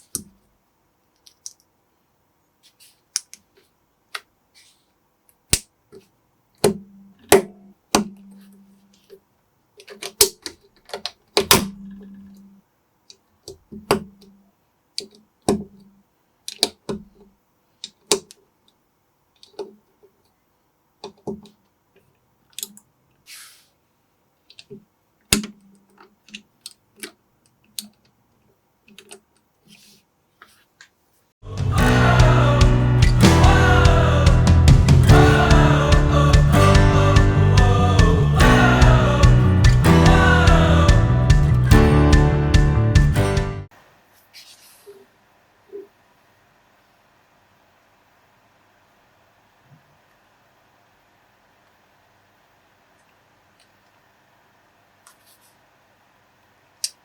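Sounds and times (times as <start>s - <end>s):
plastic bricks clicking together: 1.1s - 1.7s.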